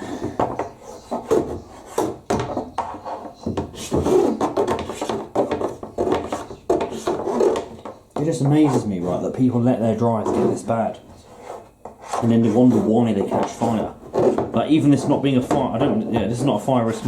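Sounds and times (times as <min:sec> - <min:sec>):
lint scraping in dryer vent: 0:00.5 - 0:17.0.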